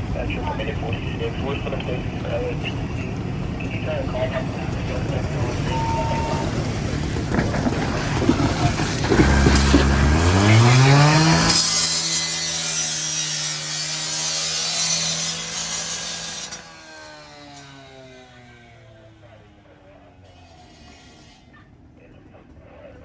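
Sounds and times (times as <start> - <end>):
power saw engine revving: 4.9 - 21.5
saw rasping cutting noise: 5.0 - 21.8.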